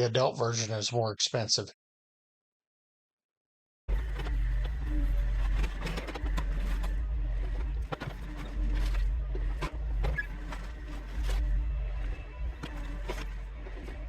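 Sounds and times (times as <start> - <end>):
excavator engine rumbling: 3.9 - 14.0
machine knocks and scrapes: 3.9 - 14.0.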